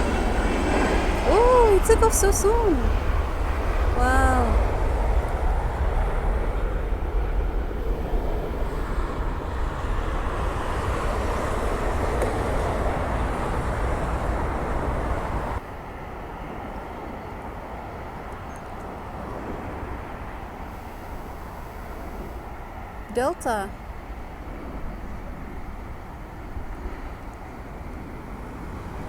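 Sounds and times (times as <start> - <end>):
jet engines roaring: 0.0 - 15.6.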